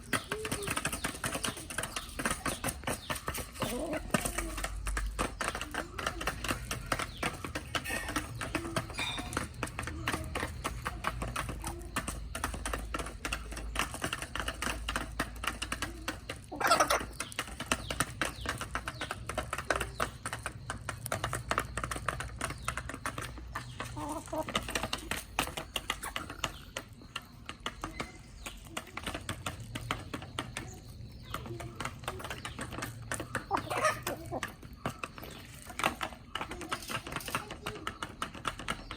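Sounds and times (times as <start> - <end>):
chickens clucking softly: 0.1 - 20.4, 22.9 - 38.9
chicken squawk: 16.5 - 17.1, 33.5 - 34.4.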